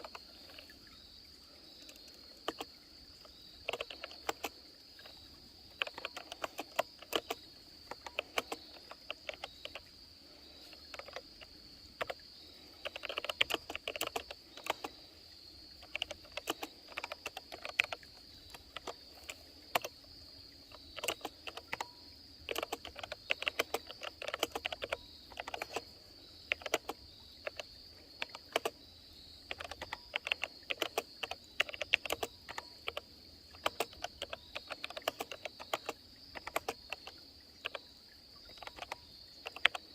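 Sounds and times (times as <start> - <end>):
insects droning: 0.0 - 39.9
keyboard key clicks: 1.8 - 2.7, 3.6 - 4.6, 5.8 - 9.8, 10.7 - 12.2, 12.8 - 14.9, 15.8 - 20.0, 20.7 - 21.9, 22.5 - 25.9, 26.5 - 28.8, 29.5 - 33.0, 33.6 - 37.8, 38.5 - 39.8.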